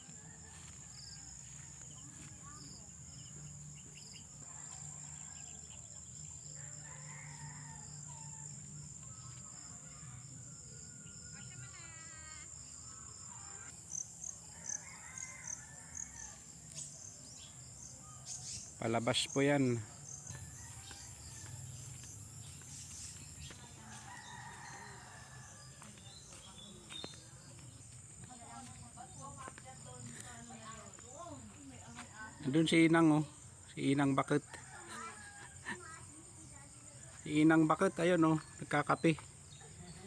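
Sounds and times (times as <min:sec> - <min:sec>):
rooster crowing: 0:00.0 - 0:02.6, 0:06.4 - 0:12.0, 0:14.4 - 0:16.6, 0:20.1 - 0:22.6, 0:23.7 - 0:26.1, 0:34.5 - 0:36.0
insects droning: 0:00.0 - 0:40.0.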